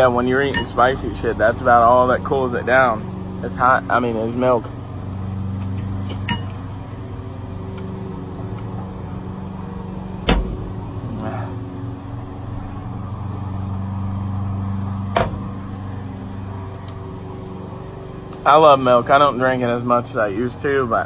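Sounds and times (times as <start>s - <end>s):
steady low hum: 0.0s - 21.0s
sharp knocks: 10.2s - 10.8s, 15.1s - 15.5s.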